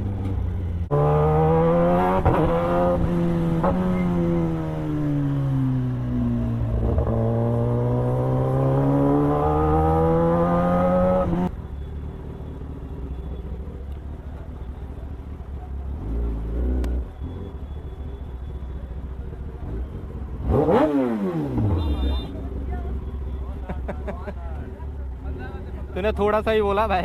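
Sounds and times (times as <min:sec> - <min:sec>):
motorcycle engine accelerating: 0:00.0 - 0:11.6, 0:19.5 - 0:23.0.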